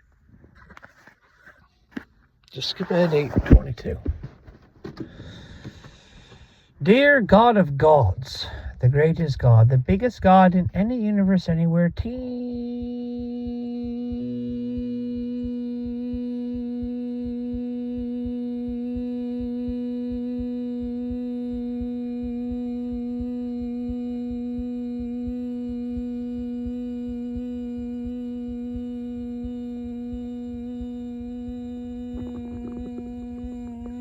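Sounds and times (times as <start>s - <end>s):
low fluttering rumble: 12.0s - 34.0s
steady droning note: 12.0s - 34.0s.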